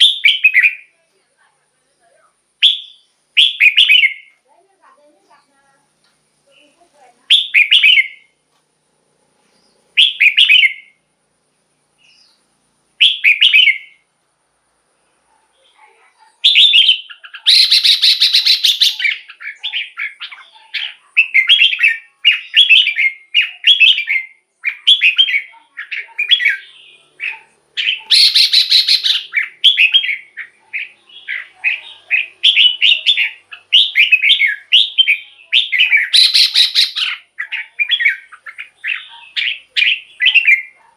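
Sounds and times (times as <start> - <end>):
bulbul singing whistled phrases: 0.0 - 1.0, 2.6 - 4.4, 6.5 - 8.4, 9.6 - 11.1, 13.0 - 14.0, 16.4 - 40.9
harsh bird chattering: 2.6 - 4.3, 16.2 - 40.9.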